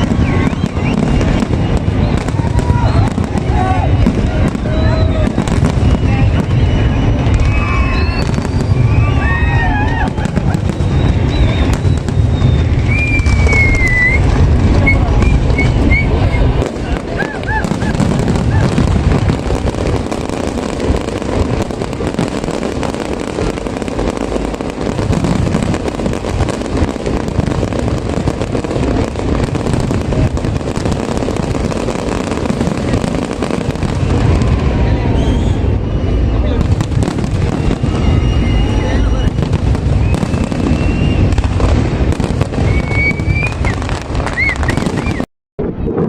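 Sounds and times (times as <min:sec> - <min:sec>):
short whistle: 0:00.0 - 0:03.1, 0:04.6 - 0:09.3, 0:10.7 - 0:16.6, 0:35.1 - 0:36.7, 0:37.5 - 0:41.6, 0:42.5 - 0:45.3
crowd chattering: 0:00.0 - 0:46.0.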